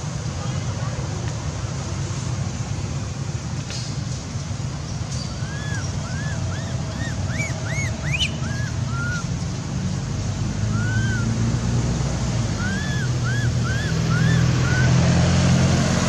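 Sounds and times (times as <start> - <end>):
high whistle-like calls: 5.2 - 9.3, 10.7 - 11.4, 12.6 - 15.0.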